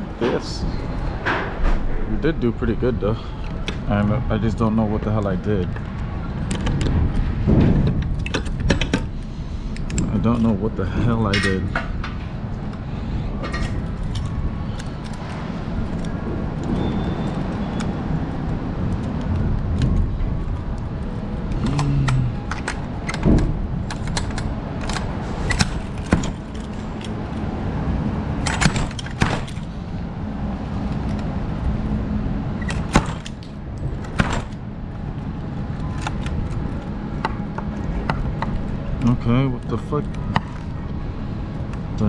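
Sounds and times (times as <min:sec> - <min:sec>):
clicks and knocks of handling: 0:05.1 - 0:10.6, 0:11.2 - 0:12.8, 0:13.4 - 0:27.5, 0:28.4 - 0:29.7, 0:35.7 - 0:40.8.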